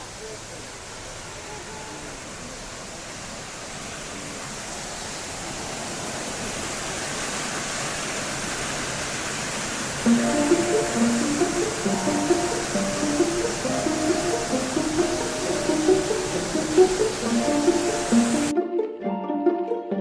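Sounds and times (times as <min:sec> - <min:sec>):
waterfall rushing: 0:00.0 - 0:20.0
music with plucked notes: 0:10.1 - 0:20.0.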